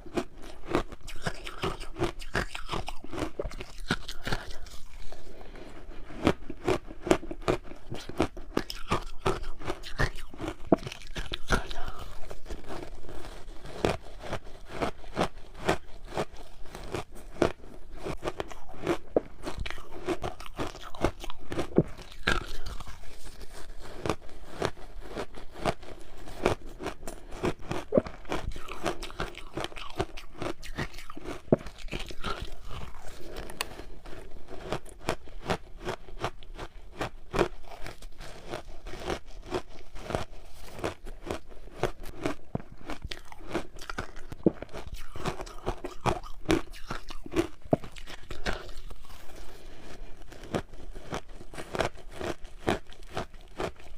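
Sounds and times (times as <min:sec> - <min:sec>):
ice crunching while chewed: 0:00.0 - 0:53.9.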